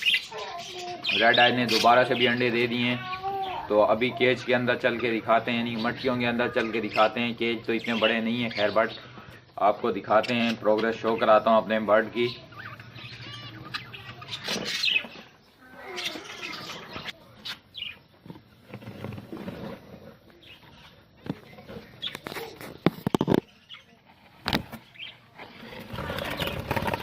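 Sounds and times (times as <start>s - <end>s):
budgerigars chirping and chattering: 0.0s - 18.1s, 20.4s - 24.0s, 24.8s - 27.0s
rustling: 18.1s - 27.0s.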